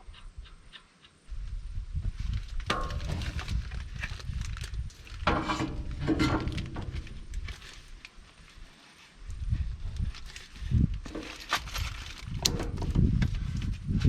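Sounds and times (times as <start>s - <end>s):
low rumble: 2.0s - 7.8s
metal clanking and scraping: 2.7s - 4.2s, 5.0s - 7.8s, 11.0s - 13.2s.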